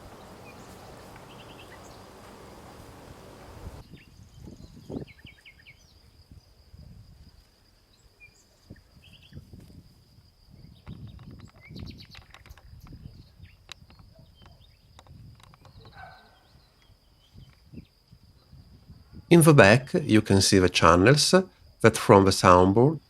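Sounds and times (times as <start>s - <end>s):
low hiss: 0.0s - 4.3s, 18.8s - 23.0s
high insect whine: 0.0s - 23.0s.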